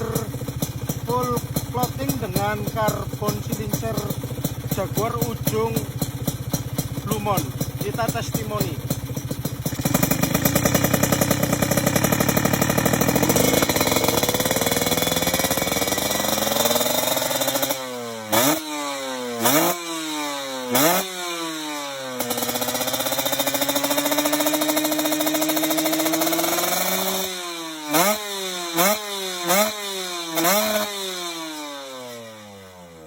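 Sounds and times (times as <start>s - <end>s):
two-stroke motorcycle engine revving: 0.0s - 33.0s.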